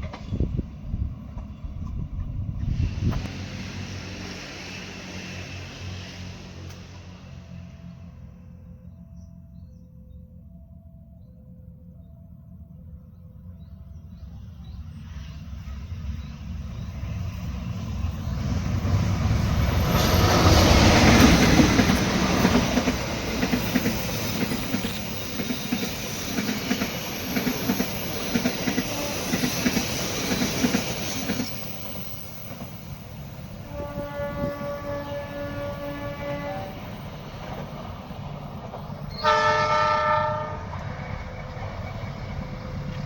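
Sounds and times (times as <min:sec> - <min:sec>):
train wheels clacking over rail joints: 0:19.9 - 0:31.6
train horn blasts: 0:28.7 - 0:29.8, 0:33.5 - 0:37.1, 0:39.1 - 0:40.8.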